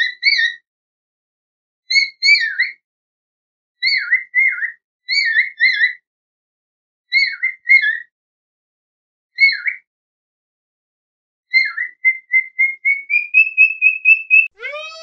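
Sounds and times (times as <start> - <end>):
whistled bird calls: 0.0 - 0.7, 1.9 - 2.8, 3.8 - 6.0, 7.1 - 8.1, 9.4 - 9.9, 11.5 - 15.0
fuller animal call: 14.5 - 15.0.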